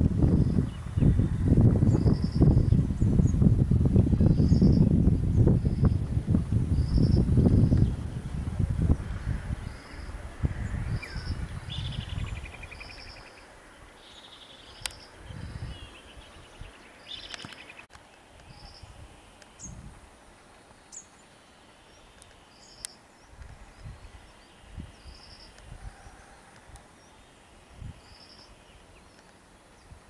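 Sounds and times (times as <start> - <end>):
birds chirping and trilling: 0.3 - 3.4, 4.1 - 6.0, 8.9 - 17.9, 20.8 - 30.0.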